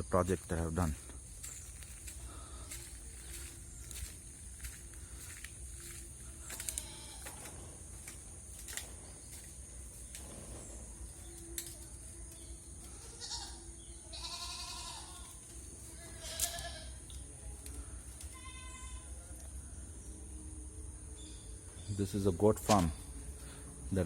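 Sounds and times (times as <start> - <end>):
steady low hum: 0.0 - 14.1
goats bleating: 6.4 - 7.5, 12.9 - 17.1, 18.2 - 19.2.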